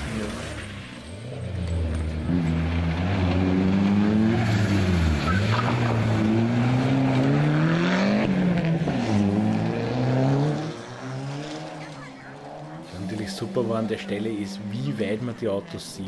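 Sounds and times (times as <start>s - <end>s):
car engine revving hard: 2.0s - 15.1s.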